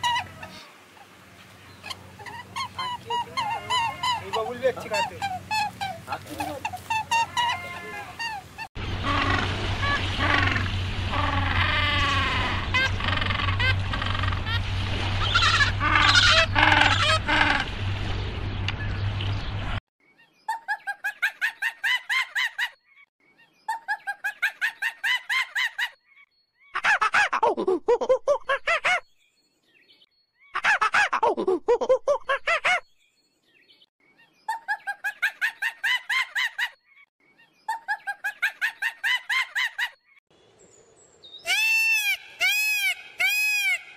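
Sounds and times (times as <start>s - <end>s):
animal calling in rapid notes: 1.8s - 14.6s, 15.2s - 17.7s
penguins calling in a group: 2.4s - 9.5s
short honking calls: 3.2s - 9.3s.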